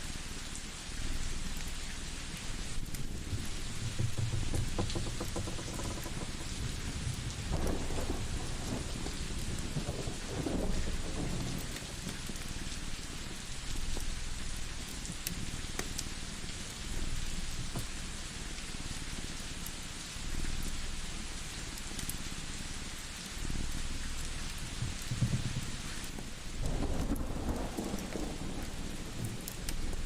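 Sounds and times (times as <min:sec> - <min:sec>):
steady rain: 0:00.0 - 0:30.0
wood fire crackling: 0:00.2 - 0:19.9, 0:20.5 - 0:30.0
rolling thunder rumble: 0:02.9 - 0:13.4, 0:26.6 - 0:30.0.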